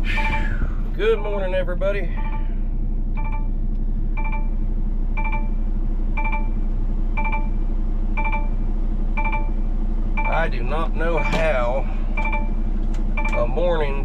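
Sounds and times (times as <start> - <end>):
electronic warning chime: 0.0 - 0.6, 2.1 - 2.6, 3.2 - 3.6, 4.2 - 4.6, 5.2 - 5.6, 6.2 - 7.6, 8.2 - 13.9
steady low hum: 0.0 - 14.0.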